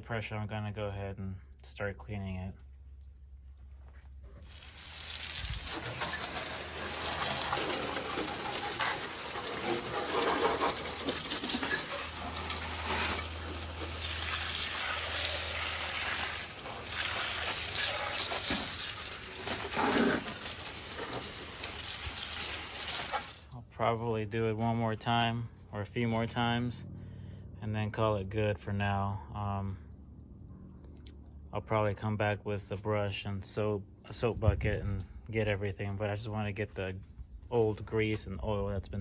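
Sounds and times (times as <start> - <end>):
hose water spattering on engine: 4.4 - 23.6.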